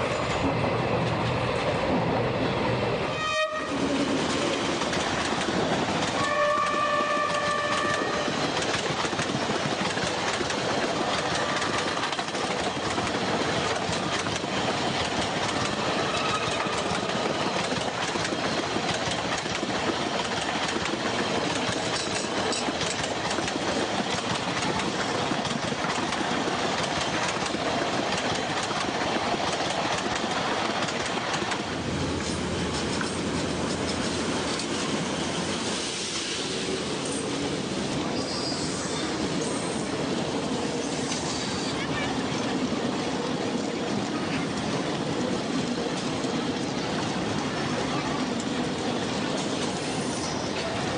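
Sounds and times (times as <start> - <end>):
train running on rails: 0.0 - 50.9
train horn: 3.1 - 3.8, 6.2 - 8.4, 16.0 - 16.9.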